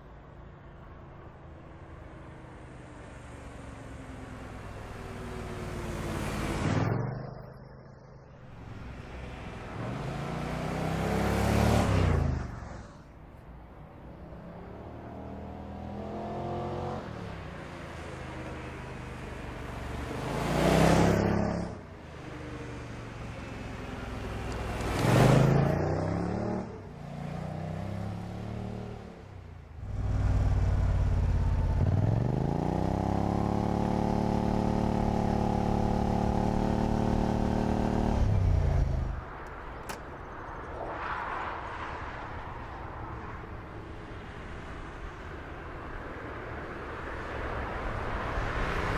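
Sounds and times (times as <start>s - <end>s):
cars passing by: 0.0s - 48.9s
engine revving high: 9.7s - 12.5s.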